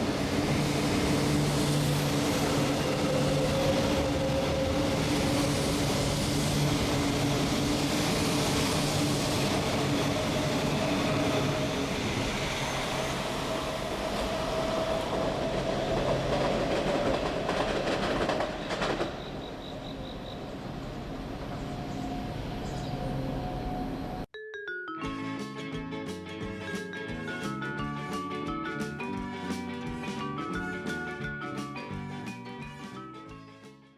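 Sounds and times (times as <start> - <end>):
train wheels rumbling on rail: 0.0 - 24.2.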